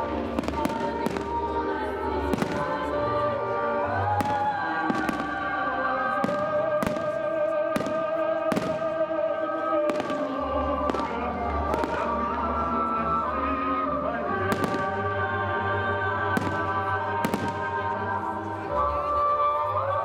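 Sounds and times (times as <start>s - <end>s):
fireworks bangs: 0.0s - 1.5s, 2.3s - 2.9s, 4.1s - 12.4s, 14.5s - 15.2s, 16.3s - 18.0s
music with long held notes: 0.0s - 20.0s.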